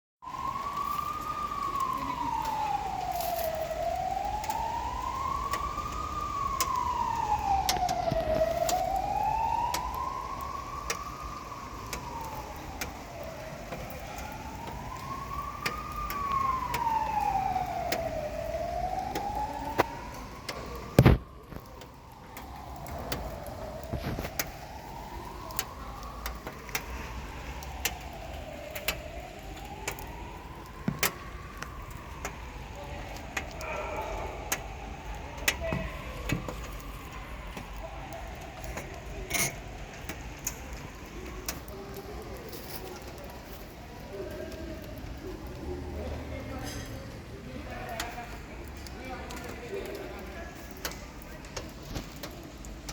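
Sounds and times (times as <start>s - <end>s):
siren wailing: 0.2s - 52.9s.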